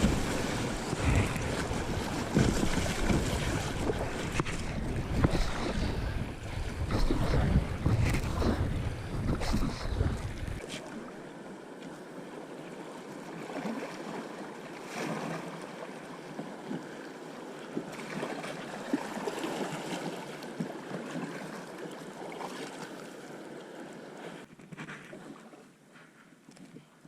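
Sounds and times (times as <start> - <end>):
river water rushing: 0.0 - 5.7
water splashes and crackles: 0.0 - 27.0.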